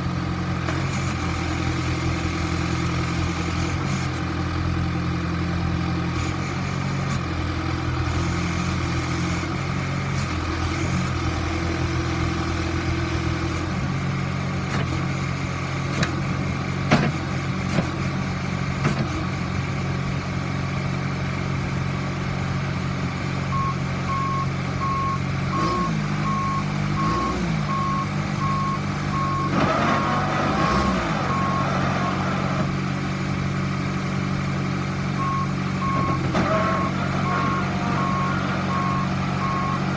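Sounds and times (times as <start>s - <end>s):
diesel engine running: 0.0s - 39.9s
backup alarm beeping: 23.5s - 29.5s, 35.2s - 36.2s, 37.4s - 39.9s.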